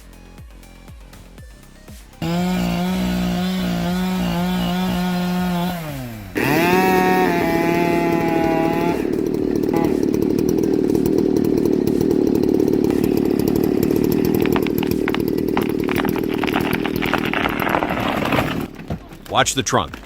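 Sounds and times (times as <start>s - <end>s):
chainsaw cutting wood: 2.1s - 20.0s
tree trunk cracking: 6.4s - 20.0s.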